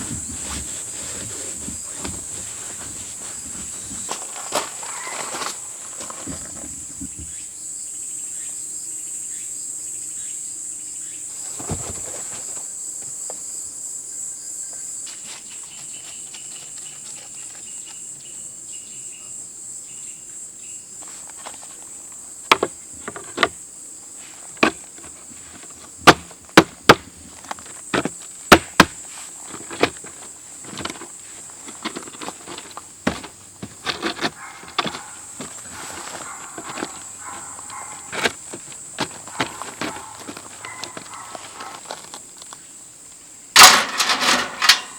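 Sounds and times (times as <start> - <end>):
insects chirring: 0.0 - 44.9
sharp irregular knocks: 22.5 - 23.6, 24.6 - 27.2, 27.9 - 30.1, 31.7 - 35.8.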